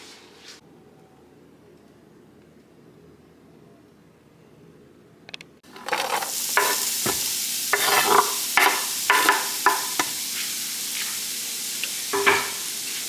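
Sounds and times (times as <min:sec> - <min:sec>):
food sizzling in a hot pan: 0:05.6 - 0:13.0
utensil scraping a pan: 0:05.7 - 0:11.3, 0:12.2 - 0:13.0.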